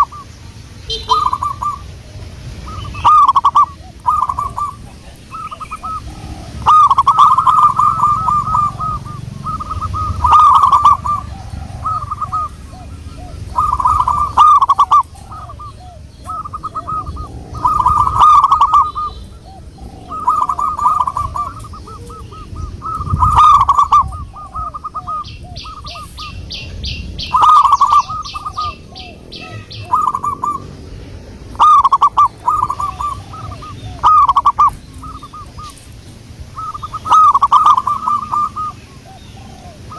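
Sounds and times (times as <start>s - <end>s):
dove cooing: 0.0s - 39.9s
small bird high trill: 0.9s - 1.8s, 2.7s - 30.7s.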